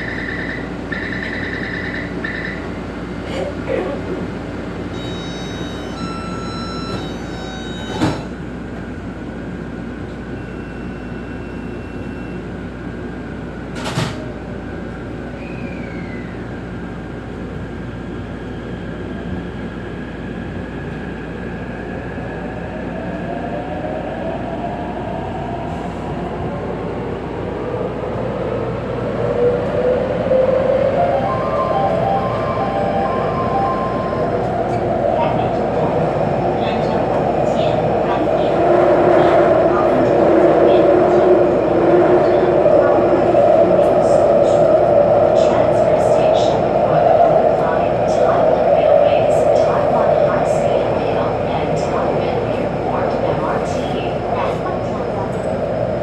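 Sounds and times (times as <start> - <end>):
train wheels rumbling on rails: 24.3 - 56.0.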